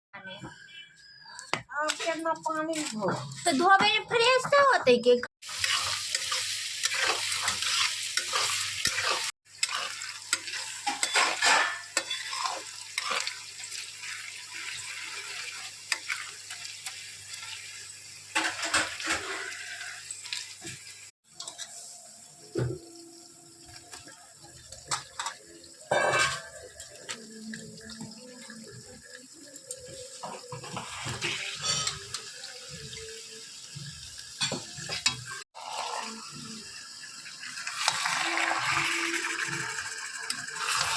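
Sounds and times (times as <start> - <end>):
sizzling: 0.6 - 40.9
pot and utensils clattering: 5.5 - 17.6, 18.3 - 20.7, 23.7 - 28.9, 29.7 - 33.0.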